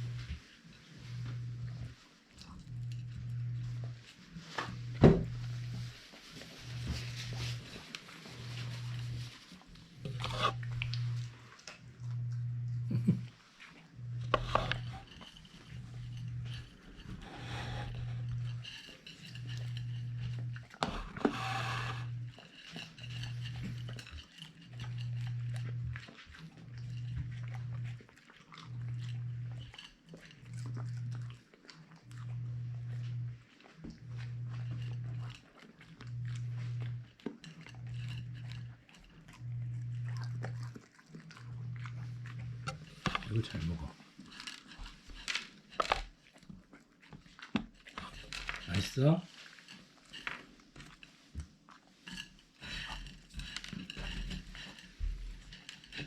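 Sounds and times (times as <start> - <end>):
dog chewing: 0.0 - 56.0
low hum: 1.0 - 22.4
dog growling low: 10.0 - 13.4
wet chewing and biting clicks: 23.6 - 48.8.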